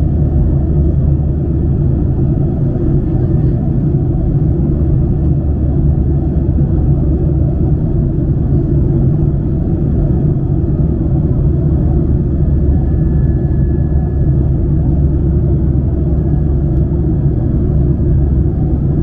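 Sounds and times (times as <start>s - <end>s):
airplane engine rumble in cabin: 0.0s - 19.0s
faint thin whine: 11.8s - 17.0s.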